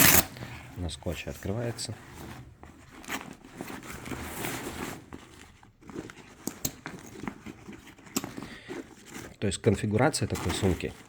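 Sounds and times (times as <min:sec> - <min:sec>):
nylon fabric rustling: 0:01.3 - 0:09.5.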